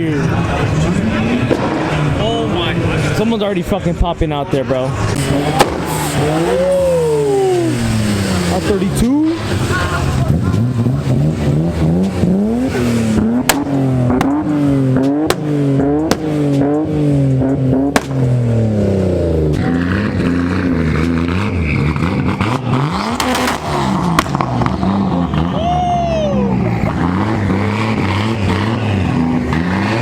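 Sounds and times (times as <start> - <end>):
car engine revving: 0.0 - 30.0
exhaust pops and bangs: 1.3 - 3.2, 5.0 - 6.5, 7.9 - 19.7, 22.0 - 25.5.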